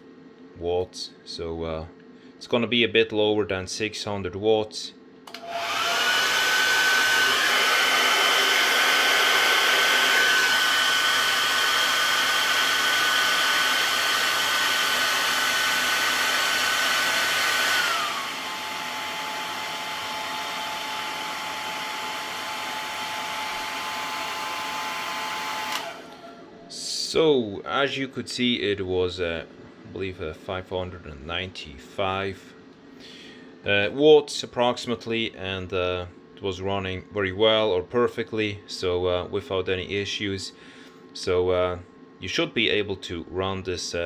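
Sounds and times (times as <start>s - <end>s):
hairdryer running: 5.3s - 26.7s.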